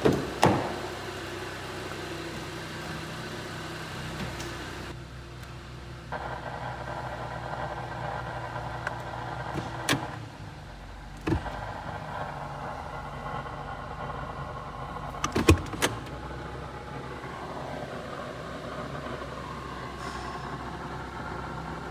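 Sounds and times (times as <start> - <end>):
car engine idling hum: 0.0 - 21.9.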